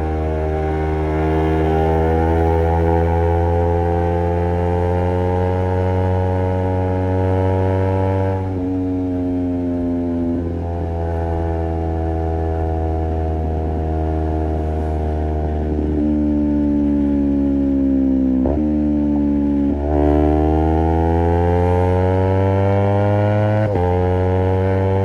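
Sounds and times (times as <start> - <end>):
motorcycle engine riding: 0.0 - 25.0.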